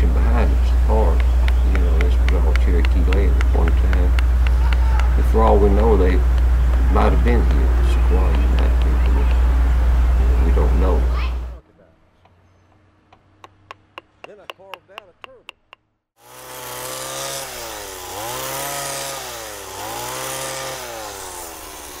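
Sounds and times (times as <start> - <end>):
chainsaw cutting wood: 1.0 - 7.7, 16.2 - 22.0.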